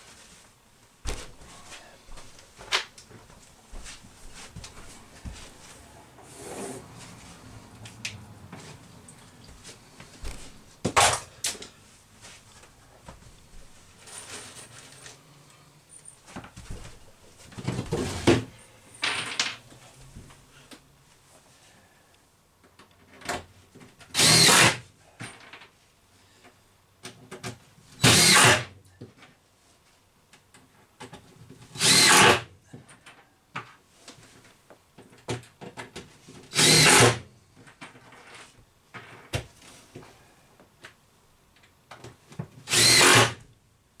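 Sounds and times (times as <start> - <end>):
power drill driving screws into wood: 10.9 - 11.3, 24.1 - 24.8, 28.0 - 28.7, 31.8 - 32.5, 36.5 - 37.2, 42.6 - 43.4.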